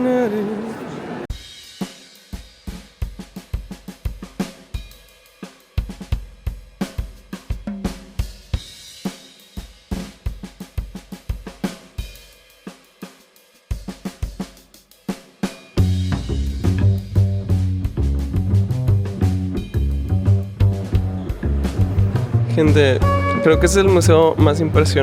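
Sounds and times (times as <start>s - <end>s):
song with drum-kit beat: 1.3s - 21.2s.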